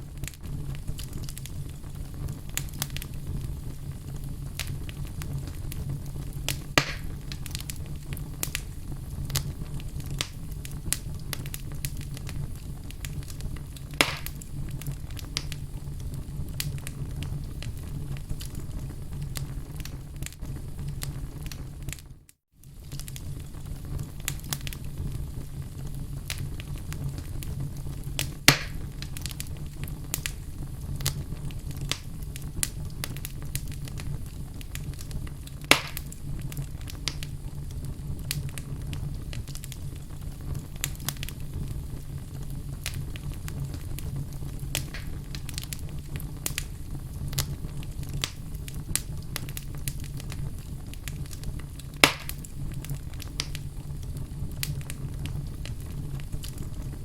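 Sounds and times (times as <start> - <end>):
fire crackling: 0.0 - 57.0
fire rumbling: 0.0 - 57.0
logs popping: 6.5 - 7.8, 13.9 - 15.5, 28.2 - 29.3, 35.6 - 36.2, 44.7 - 45.8, 51.2 - 53.6.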